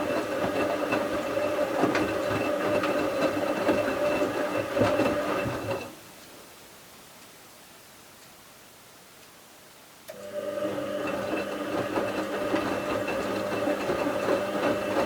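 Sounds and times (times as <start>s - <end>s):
drum rattling and clicking: 0.0s - 5.9s, 11.1s - 15.0s
washing machine motor whine: 0.0s - 5.9s, 10.1s - 15.0s.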